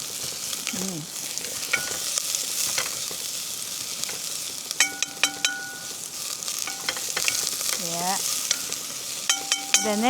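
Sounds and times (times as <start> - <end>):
garlic and onion sizzling in oil: 0.0 - 10.0
metallic clinks of pan stirring: 1.6 - 2.1, 4.8 - 7.8, 8.4 - 10.0.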